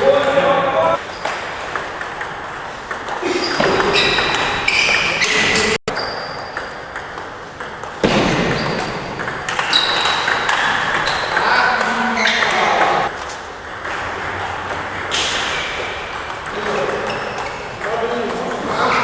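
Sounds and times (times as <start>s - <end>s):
table tennis balls clicking: 1.0s - 19.0s.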